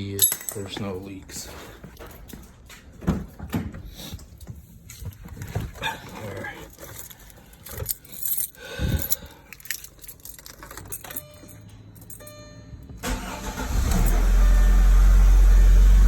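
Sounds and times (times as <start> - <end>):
car keys jangling: 6.1 - 14.4.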